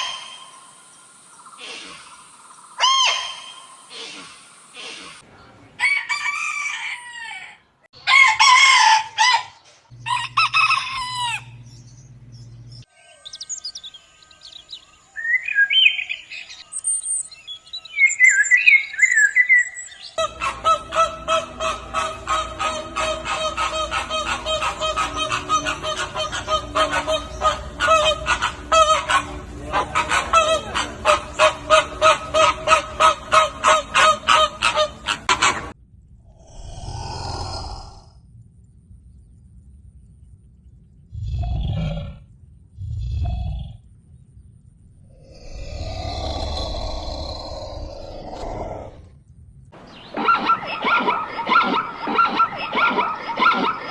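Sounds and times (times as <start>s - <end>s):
rooster crowing: 5.8s - 11.6s
chickens chirping and clucking: 17.6s - 35.7s, 49.8s - 53.9s.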